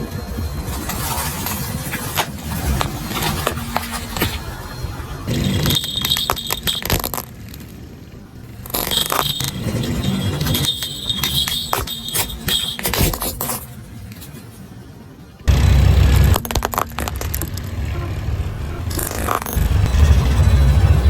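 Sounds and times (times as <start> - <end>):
high squeal with clicks: 2.7 - 7.3, 8.6 - 13.3.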